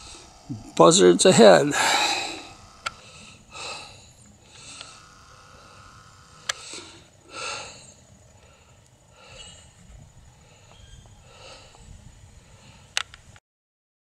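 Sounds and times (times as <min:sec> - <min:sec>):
man breathing hard: 0:01.7 - 0:05.9, 0:06.5 - 0:13.0.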